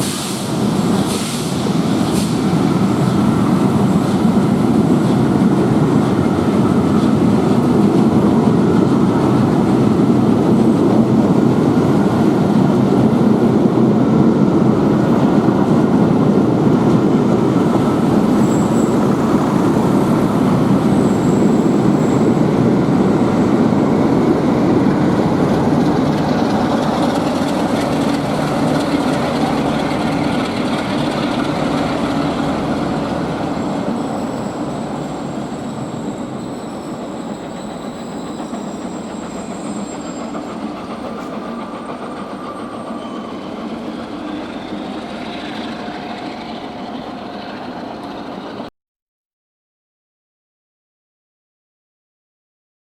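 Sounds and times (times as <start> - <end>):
train rumbling on rails: 0.0 - 48.7
high wheel squeals: 17.3 - 23.5, 25.6 - 48.7.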